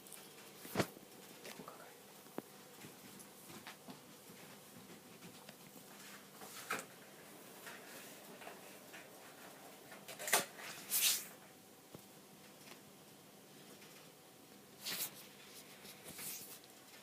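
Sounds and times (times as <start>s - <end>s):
faint handling noises: 0.0s - 17.0s
rustling scrapes: 10.6s - 11.3s, 14.8s - 16.7s.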